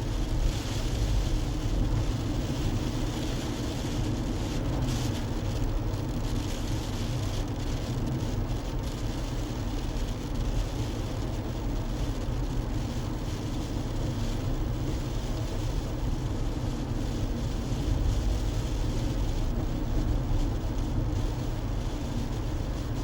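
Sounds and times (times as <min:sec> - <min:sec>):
car engine rumble: 0:07.6 - 0:23.0
tyre and wind hiss: 0:08.2 - 0:23.0.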